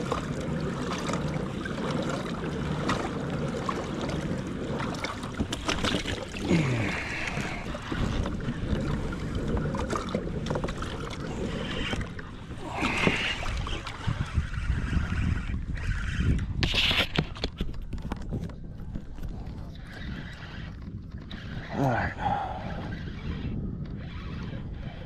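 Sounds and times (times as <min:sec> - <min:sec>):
water splashes: 0:00.0 - 0:17.8
water sloshing against kayak hull: 0:00.0 - 0:22.8.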